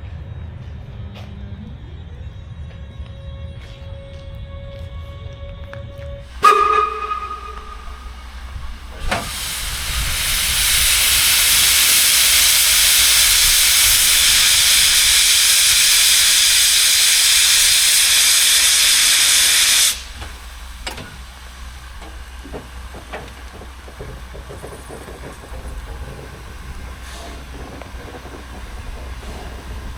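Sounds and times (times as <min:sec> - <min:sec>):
steam locomotive venting steam: 0:06.2 - 0:29.9.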